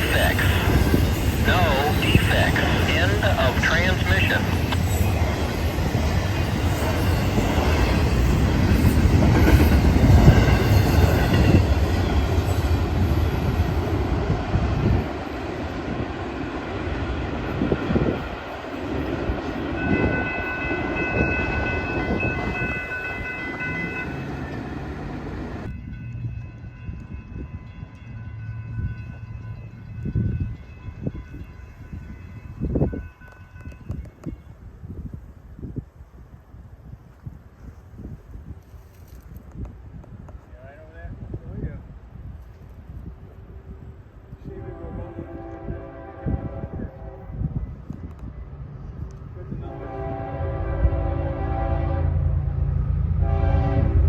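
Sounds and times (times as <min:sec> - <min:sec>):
freight train rumbling past: 0:00.0 - 0:39.0, 0:39.8 - 0:54.0
train horn chord: 0:44.4 - 0:47.6, 0:49.5 - 0:54.0.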